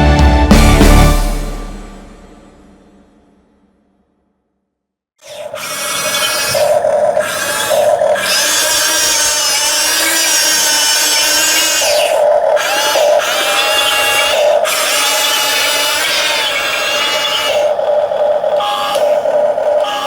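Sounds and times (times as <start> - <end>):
electric gear motors whining: 5.2 - 20.0.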